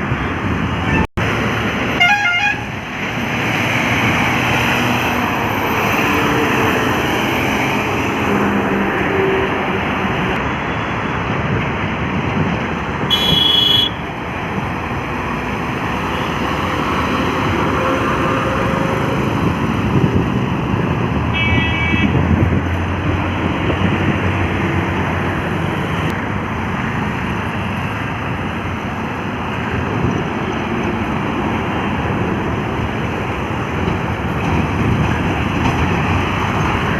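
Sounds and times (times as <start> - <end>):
trucks driving past: 0.0 - 36.9.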